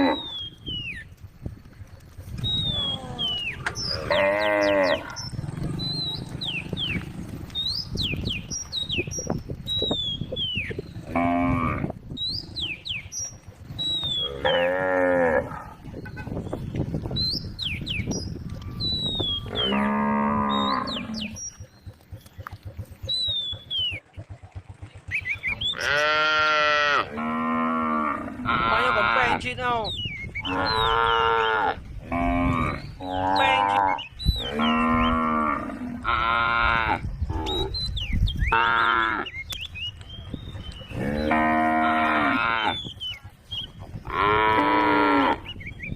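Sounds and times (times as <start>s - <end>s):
cows mooing: 0.0s - 0.6s, 2.6s - 7.6s, 11.0s - 12.0s, 13.8s - 16.0s, 19.2s - 21.6s, 25.6s - 29.4s, 30.4s - 37.8s, 38.5s - 39.4s, 40.9s - 43.0s, 44.0s - 45.6s
whistled calls: 0.0s - 1.2s, 1.9s - 11.1s, 12.2s - 14.7s, 16.0s - 26.0s, 29.4s - 31.2s, 37.4s - 44.2s.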